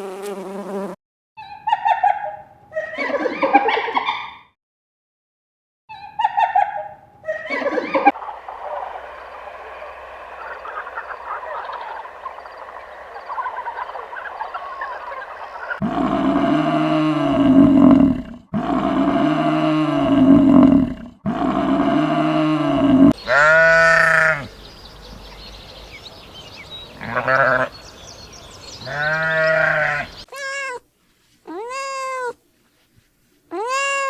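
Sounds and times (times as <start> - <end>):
light chirps: 8.2 - 15.8
farm animal bleating: 23.2 - 24.5, 27.0 - 27.8, 28.8 - 30.8.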